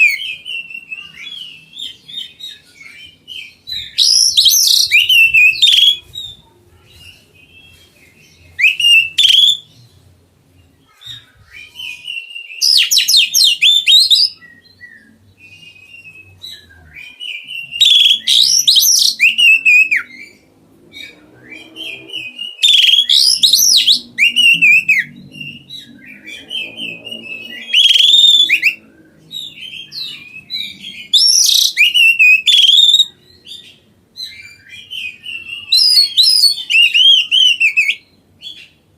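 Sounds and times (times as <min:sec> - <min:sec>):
bird whistling and trilling song: 0:00.0 - 0:06.4, 0:07.0 - 0:09.8, 0:10.9 - 0:38.8.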